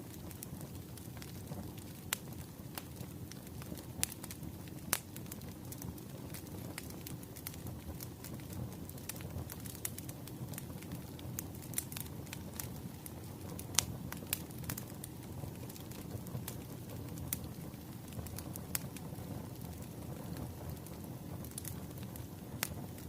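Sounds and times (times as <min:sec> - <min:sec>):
low rumble of flames: 0:00.0 - 0:23.0
logs crackling and popping: 0:00.1 - 0:23.0.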